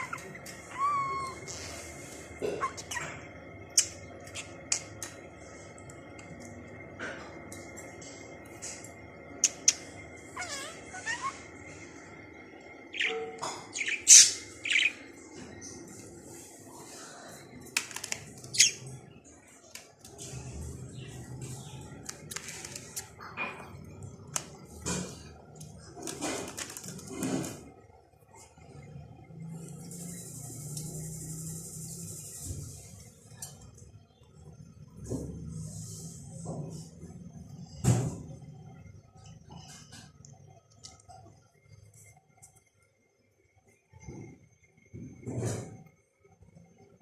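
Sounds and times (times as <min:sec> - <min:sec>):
budgerigar chattering: 0:12.9 - 0:15.0.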